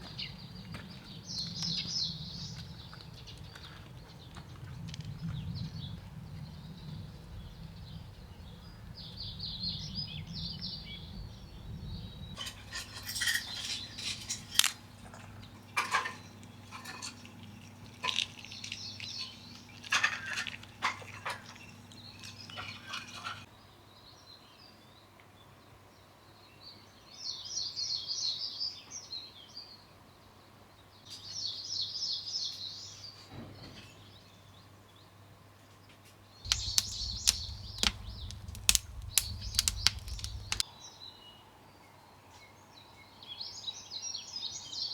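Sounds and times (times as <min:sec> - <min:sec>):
small birds singing: 0:00.0 - 0:25.0, 0:25.9 - 0:30.2, 0:36.3 - 0:41.4
sharp clicks and knocks from handling: 0:36.5 - 0:40.6.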